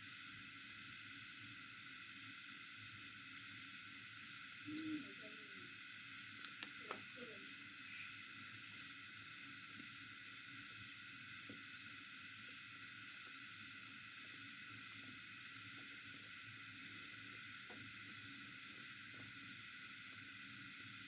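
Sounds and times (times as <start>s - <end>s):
pulsing insect chirring: 0.0s - 21.0s
faint soft clicks: 6.4s - 7.0s.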